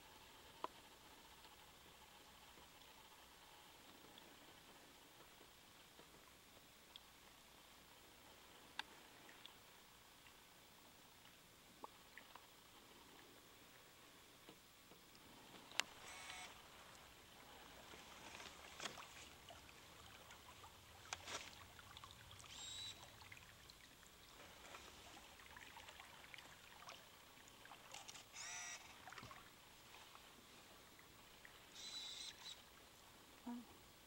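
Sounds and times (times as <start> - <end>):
river ambience: 0.0 - 34.0
faint bird calls: 22.4 - 23.2, 31.5 - 32.7.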